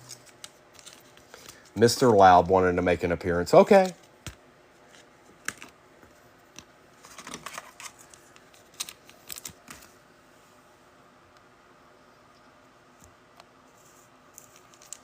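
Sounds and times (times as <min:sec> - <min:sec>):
trading cards being handled: 0:00.0 - 0:02.4, 0:03.5 - 0:10.0, 0:13.7 - 0:15.0.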